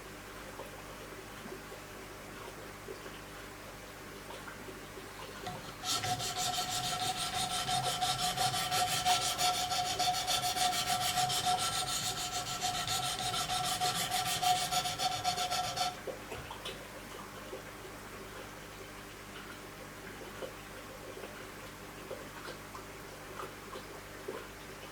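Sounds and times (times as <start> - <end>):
sharpening stone scraping knife blade: 5.5 - 16.0.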